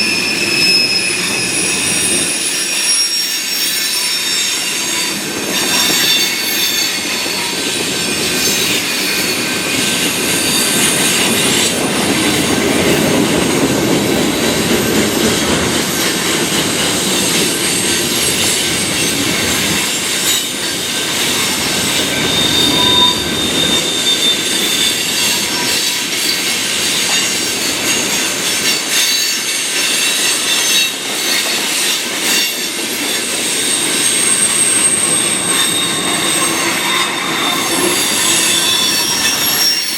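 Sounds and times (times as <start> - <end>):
high wavering wheel squeal: 0.0 - 11.9, 17.1 - 28.1, 33.1 - 39.9
train wheels rumbling on track: 0.0 - 39.9.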